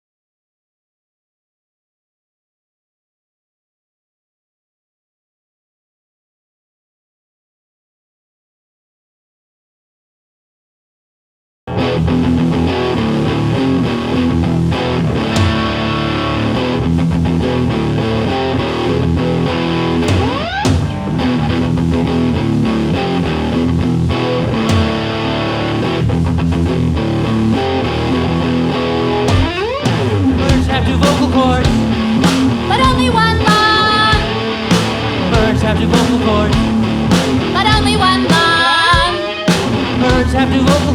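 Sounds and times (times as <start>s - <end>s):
guitar slide: 11.7s - 40.9s
rock band playing live: 11.7s - 40.9s.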